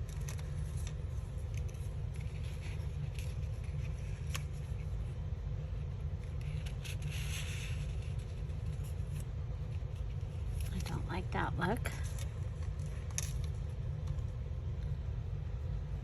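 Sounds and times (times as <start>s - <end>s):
paper scraping and rustling: 0.0s - 11.0s
steady low hum: 0.0s - 16.0s.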